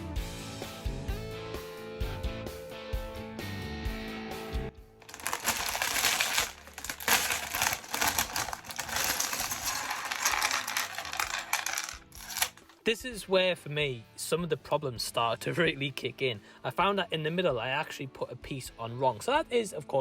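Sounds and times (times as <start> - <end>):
plastic bricks and bags rattling: 5.0 - 12.8.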